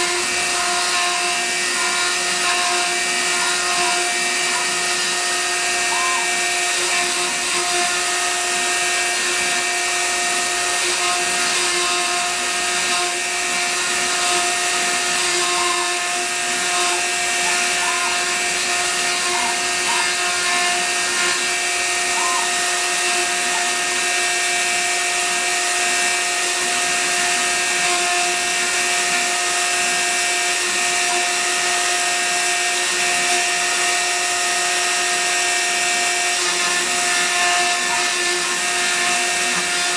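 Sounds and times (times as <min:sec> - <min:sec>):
router spindle hiss and hum: 0:00.0 - 0:39.9.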